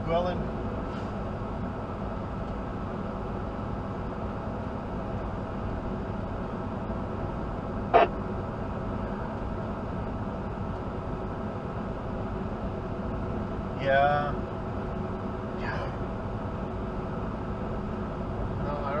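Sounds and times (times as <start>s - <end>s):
truck cab engine and road drone: 0.0s - 19.0s.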